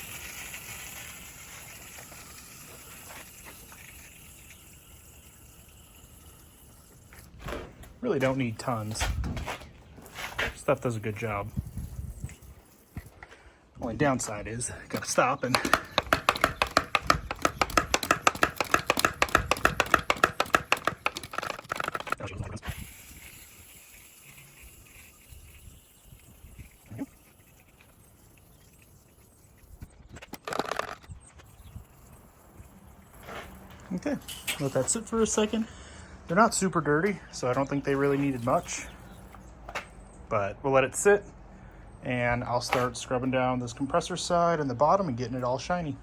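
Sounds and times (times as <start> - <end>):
garden sprayer hissing: 0.0 - 7.4, 15.4 - 22.1, 22.7 - 29.9, 37.8 - 39.4.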